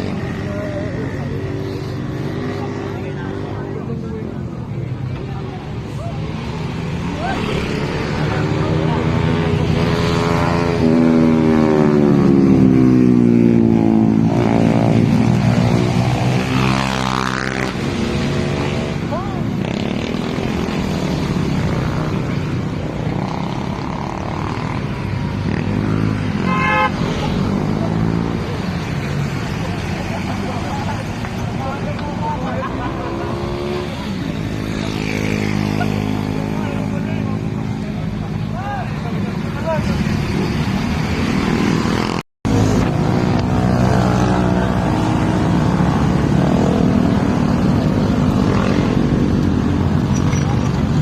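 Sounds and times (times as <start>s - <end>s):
road noise: 0.0s - 51.0s.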